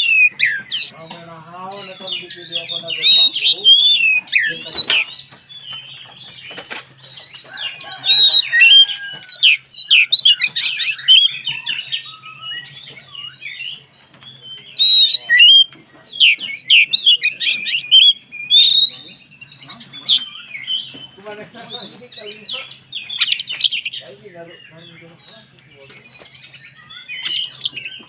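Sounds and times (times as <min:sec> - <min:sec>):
bird singing whistled notes: 0:00.0 - 0:06.1, 0:07.6 - 0:13.8, 0:14.4 - 0:21.2, 0:25.8 - 0:28.0.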